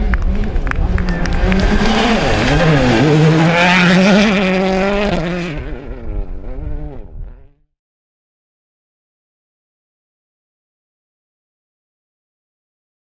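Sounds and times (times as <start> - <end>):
rally car passing at speed: 0.0 - 7.6.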